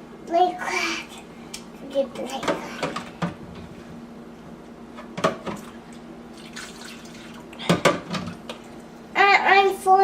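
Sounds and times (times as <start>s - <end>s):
bucket filling with water: 5.6s - 7.7s
water dripping and splashing: 6.4s - 7.5s.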